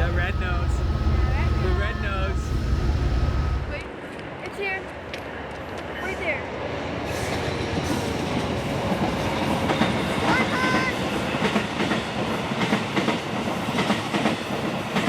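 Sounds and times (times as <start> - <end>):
brief high tone: 0.0 - 3.9
passenger train rumbling past: 0.0 - 4.4, 5.3 - 15.0.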